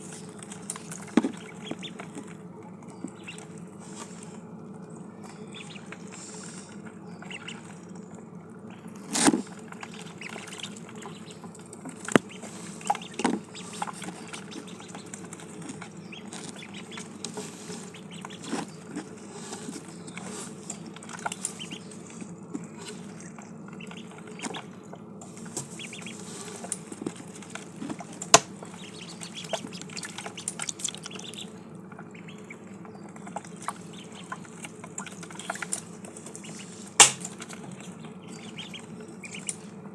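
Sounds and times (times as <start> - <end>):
ducklings pecking clicks: 0.1 - 39.9.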